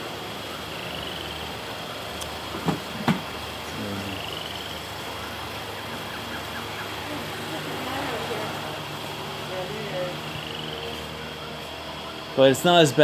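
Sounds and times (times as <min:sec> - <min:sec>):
steady background hum: 0:00.0 - 0:13.0
sharp knocks: 0:02.5 - 0:03.3.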